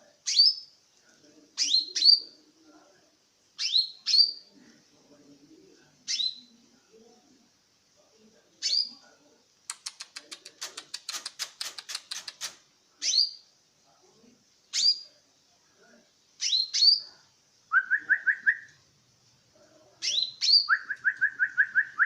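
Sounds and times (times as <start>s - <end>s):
bird singing: 3.6s - 4.5s, 16.4s - 17.1s, 17.7s - 18.8s, 20.0s - 22.0s
sharp bird chips: 9.7s - 13.3s
down-slurred bird whistles: 17.7s - 18.7s, 20.0s - 22.0s.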